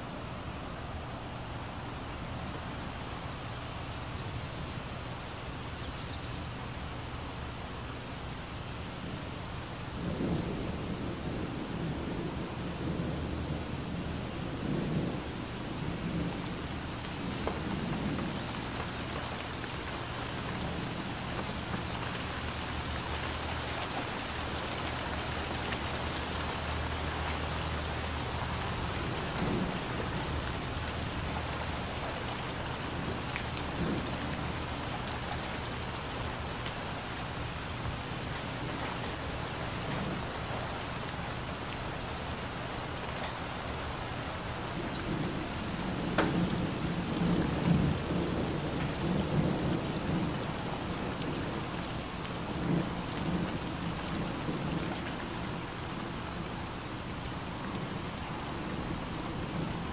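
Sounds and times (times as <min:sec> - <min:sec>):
rain pattering on water and concrete: 0:00.0 - 0:59.9.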